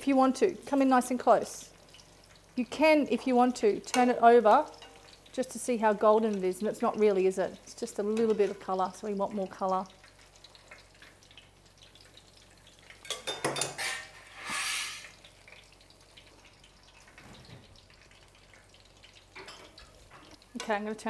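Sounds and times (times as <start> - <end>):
oil sizzling in a pan: 0.0 - 21.0
short hiss: 14.2 - 15.2.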